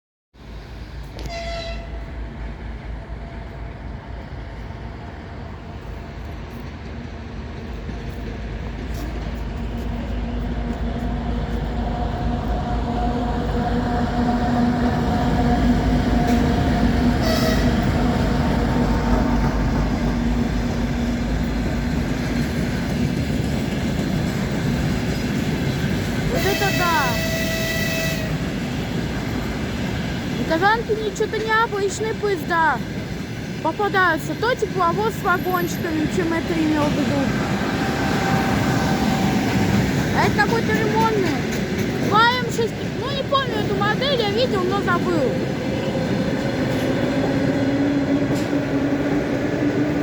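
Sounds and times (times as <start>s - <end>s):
diesel locomotive engines running: 0.4s - 50.0s
locomotive horn: 1.2s - 2.2s, 15.5s - 18.1s, 26.2s - 28.6s, 37.9s - 39.8s.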